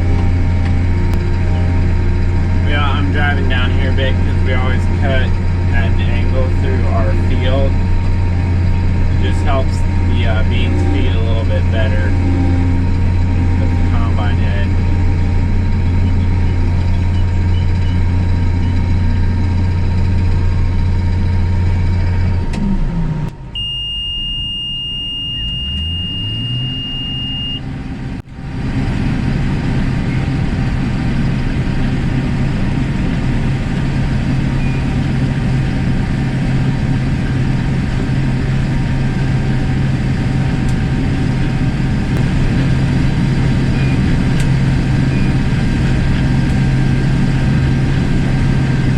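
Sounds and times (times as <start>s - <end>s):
steady high beep: 0.0s - 19.7s, 23.5s - 27.7s
combine harvester running: 0.0s - 48.9s
engine note rising: 0.0s - 48.9s.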